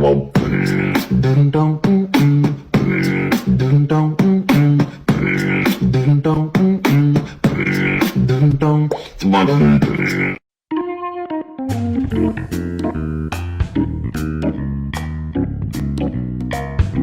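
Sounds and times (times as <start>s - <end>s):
beatbox-like vocals: 0.0s - 10.4s
music with steady beat: 0.4s - 8.4s, 11.7s - 17.0s.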